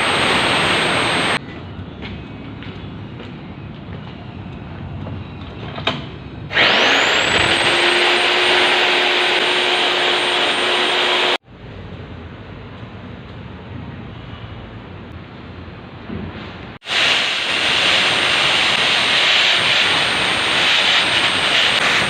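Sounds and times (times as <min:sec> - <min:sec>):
core drill motor whining: 0:06.5 - 0:11.4, 0:16.9 - 0:22.0.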